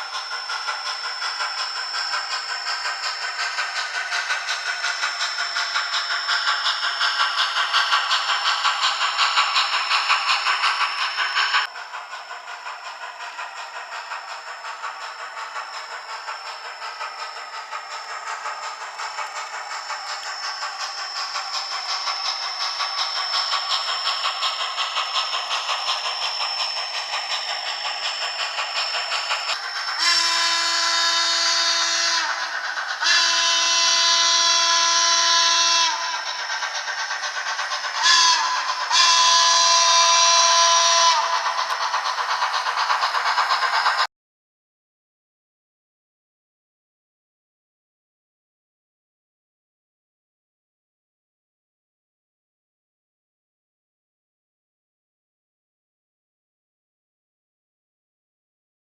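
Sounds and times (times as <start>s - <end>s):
steam locomotive chuffing: 0.0s - 44.1s
steam whistle blasts: 30.0s - 32.4s, 33.0s - 36.1s, 37.9s - 41.4s.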